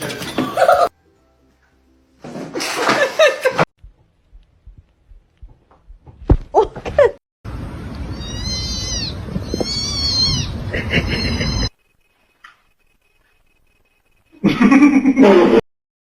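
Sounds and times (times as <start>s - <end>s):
cat meowing: 8.1s - 11.7s.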